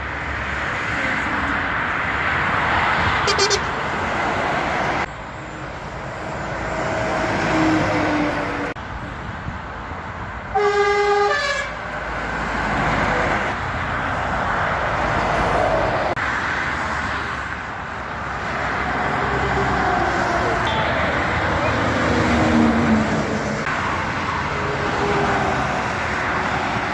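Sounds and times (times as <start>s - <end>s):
heavy traffic passing: 0.0s - 26.9s
truck horn blast: 3.2s - 3.8s, 10.5s - 11.8s, 20.6s - 22.1s.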